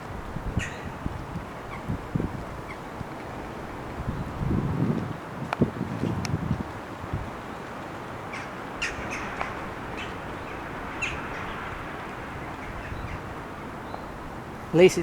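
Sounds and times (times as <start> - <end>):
outdoor background noise: 0.0 - 15.0
wind buffeting microphone: 0.0 - 15.0
sharp bird calls: 0.6 - 2.0, 8.2 - 14.2.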